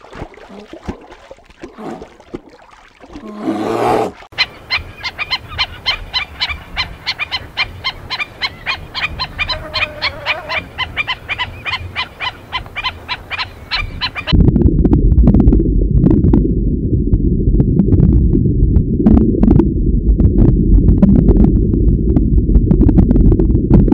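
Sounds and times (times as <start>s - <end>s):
sea lions barking: 3.4s - 14.3s
loud low rumbling: 14.3s - 23.9s.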